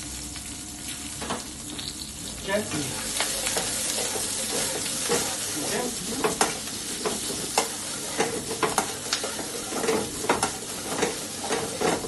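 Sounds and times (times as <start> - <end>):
stir-fry sizzling in oil: 0.0 - 12.0
utensil scraping pan: 3.3 - 12.0.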